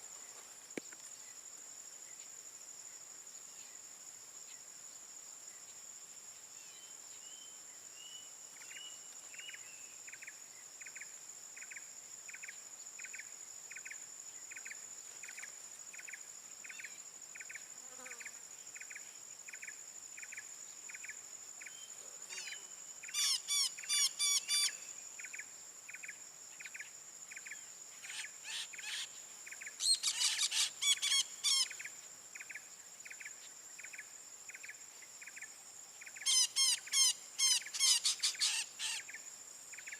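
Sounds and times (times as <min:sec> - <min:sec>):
high-pitched insect drone: 0:14.6 - 0:39.9
shrill sweeping bird calls: 0:23.1 - 0:24.8, 0:29.8 - 0:31.8, 0:36.2 - 0:39.1.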